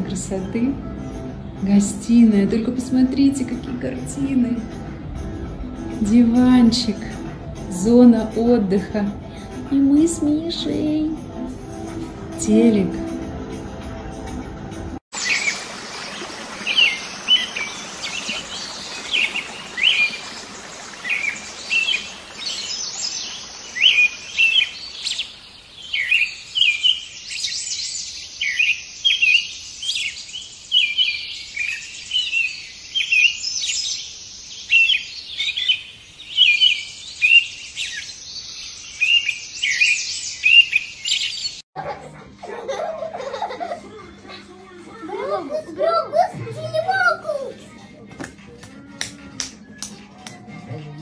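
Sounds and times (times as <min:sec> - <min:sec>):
birds chirping and singing: 0:15.2 - 0:41.6.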